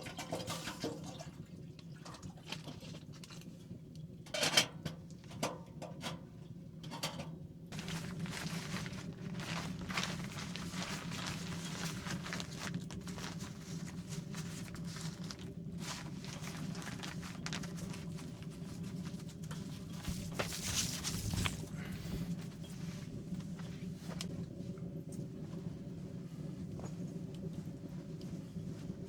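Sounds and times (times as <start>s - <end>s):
steady low hum: 7.5s - 29.0s
rain pattering on a tent: 7.7s - 29.0s.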